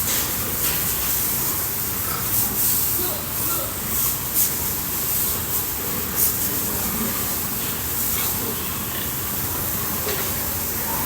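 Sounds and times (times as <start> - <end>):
water spraying from hose: 0.0 - 10.9.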